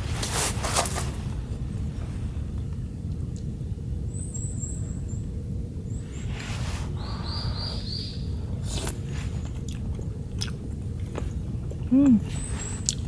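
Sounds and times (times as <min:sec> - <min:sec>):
brief rustles: 0:00.0 - 0:01.3
low outdoor rumble: 0:00.0 - 0:13.0
small birds chirping: 0:02.6 - 0:13.0.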